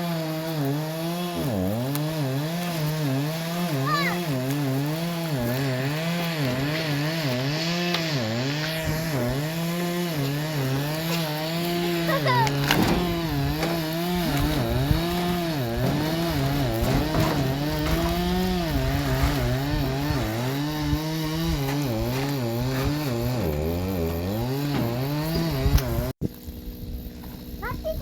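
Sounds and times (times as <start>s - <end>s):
chainsaw cutting logs: 0.0s - 28.0s.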